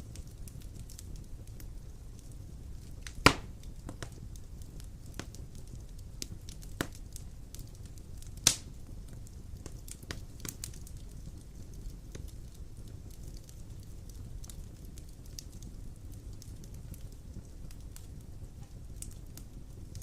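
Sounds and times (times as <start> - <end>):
fire crackles: 0.0 - 20.0
fire low rumble: 0.0 - 20.0
loud sharp pops: 3.2 - 4.1.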